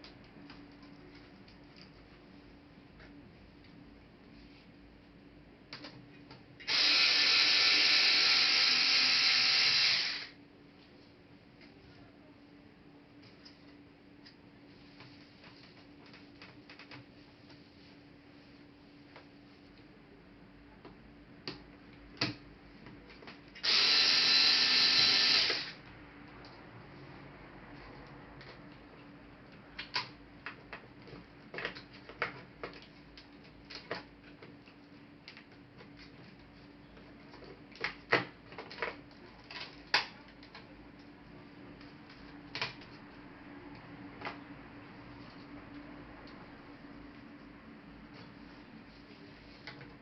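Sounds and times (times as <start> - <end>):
electric screwdriver running: 6.6 - 10.4, 23.6 - 25.8
small electric motor whirring: 6.6 - 10.4, 23.6 - 25.8.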